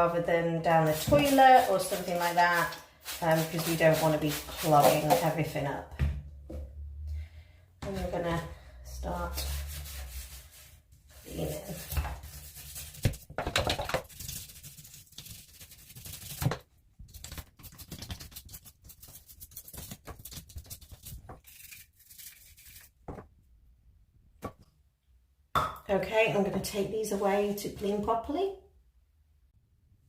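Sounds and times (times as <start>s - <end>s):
scrubbing and scraping: 0.7s - 5.7s, 7.8s - 23.0s.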